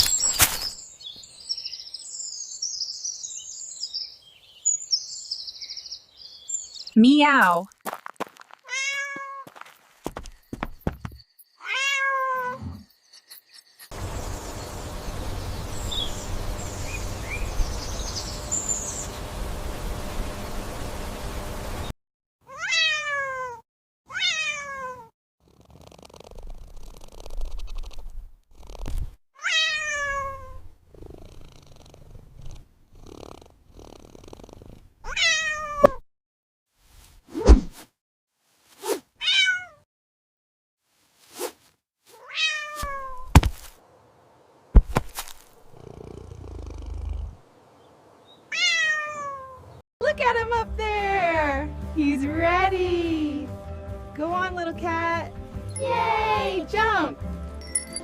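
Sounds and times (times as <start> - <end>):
cat meowing: 8.7 - 9.4, 11.6 - 12.7, 22.4 - 25.1, 29.4 - 30.6, 35.0 - 36.0, 39.2 - 39.8, 42.2 - 43.3, 48.5 - 49.7
cat purring: 25.4 - 29.1, 30.7 - 35.0, 45.6 - 47.4
short thump: 43.3 - 43.7, 44.8 - 45.4.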